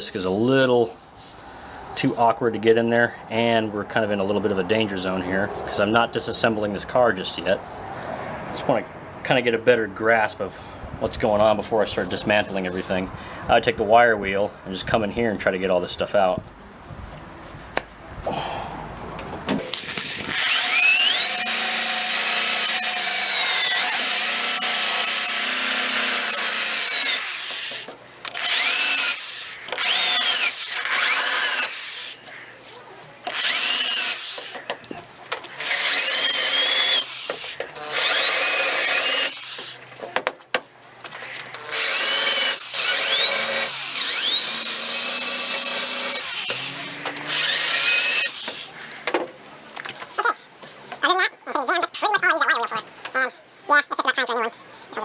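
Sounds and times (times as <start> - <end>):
wire wheel grinding steel: 19.7 - 32.3, 33.2 - 34.7, 35.6 - 39.8, 41.4 - 48.9.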